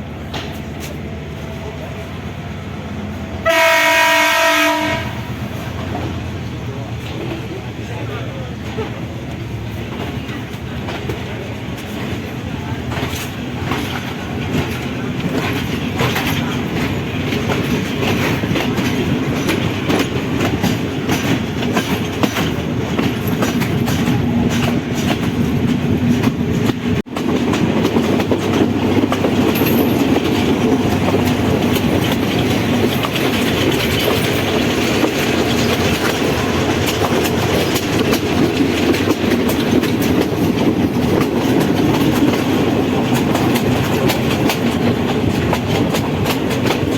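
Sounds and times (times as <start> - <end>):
wheels clickety-clack: 0.0 - 2.1, 5.6 - 46.9
train rumbling on tracks: 0.0 - 46.9.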